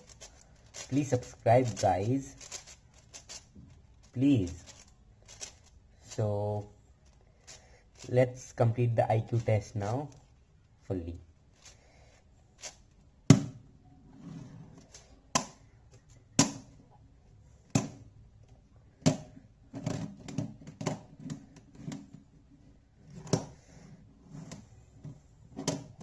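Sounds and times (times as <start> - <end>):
plastic puzzle cubes clacking: 0.0 - 8.2, 12.6 - 12.8, 14.8 - 15.6.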